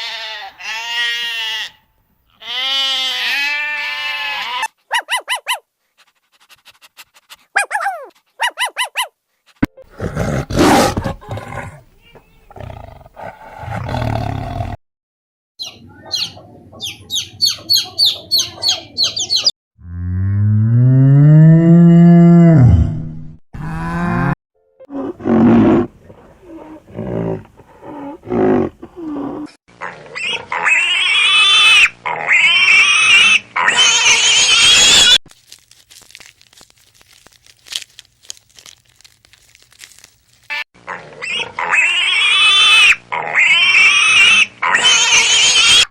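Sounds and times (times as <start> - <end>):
harsh animal screeches: 29.8 - 35.2, 38.5 - 45.9
high repeated animal calls: 29.8 - 35.2, 40.5 - 45.9.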